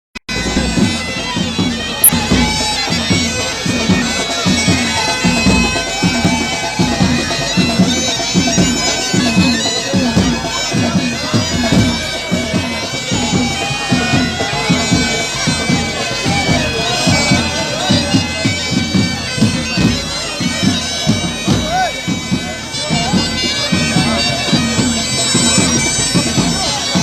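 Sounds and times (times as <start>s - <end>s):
bagpipes playing a tune: 0.3s - 27.0s
drum beat: 0.3s - 27.0s.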